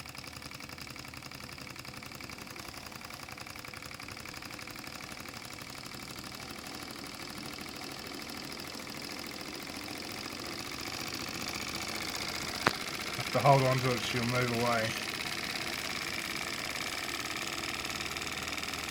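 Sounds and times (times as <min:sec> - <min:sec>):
miniature steam engine running fast: 0:00.0 - 0:18.9.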